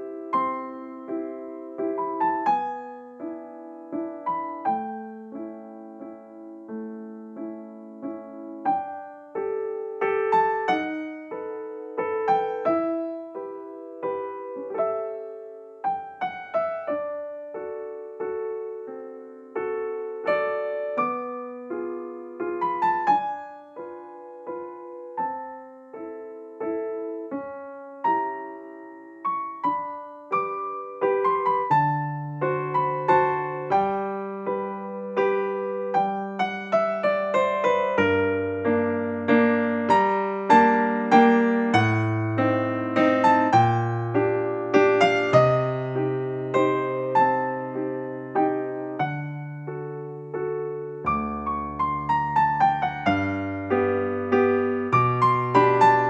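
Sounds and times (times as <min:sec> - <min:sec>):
gentle solo piano piece: 0:00.0 - 0:56.0.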